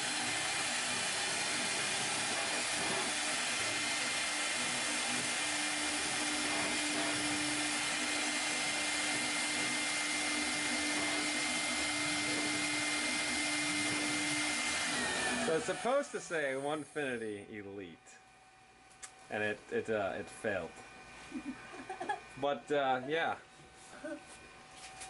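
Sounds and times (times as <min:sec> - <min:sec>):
router spindle whining: 0:00.0 - 0:17.2.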